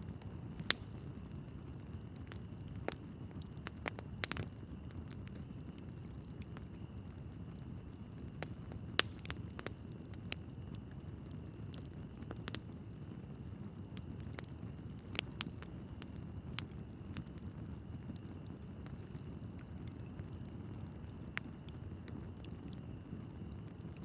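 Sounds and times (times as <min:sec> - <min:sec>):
logs crackling and popping: 0:00.1 - 0:24.0.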